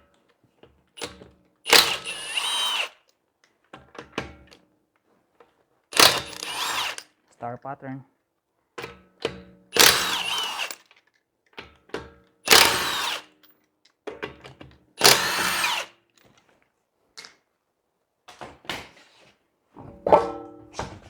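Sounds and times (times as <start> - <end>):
impact wrench hammering: 12.5 - 13.2, 15.0 - 15.8.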